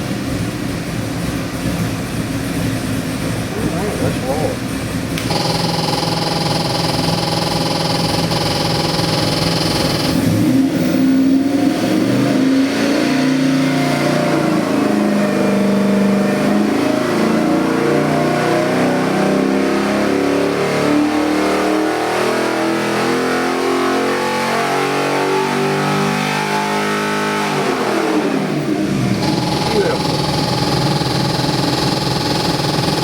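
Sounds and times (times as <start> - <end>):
engine revving: 2.5 - 33.0.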